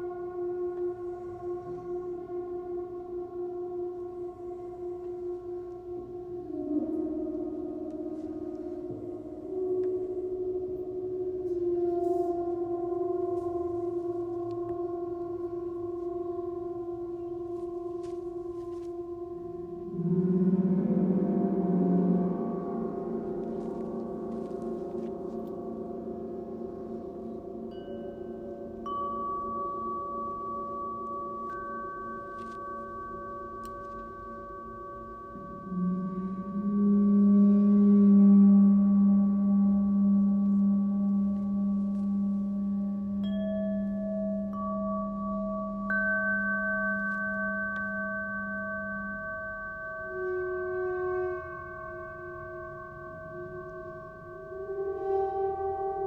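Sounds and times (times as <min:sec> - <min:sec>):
low deep tone ringing: 0:00.0 - 0:56.0
singing bowls ringing: 0:00.0 - 0:56.0
gong ringing: 0:19.5 - 0:27.1.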